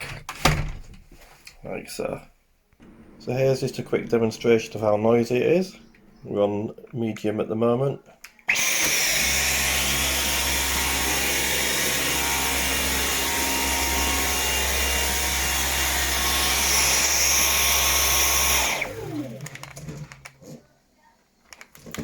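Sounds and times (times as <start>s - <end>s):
stick vacuum running: 2.8s - 6.3s, 8.5s - 20.2s
vacuum motor spinning down: 8.5s - 19.7s.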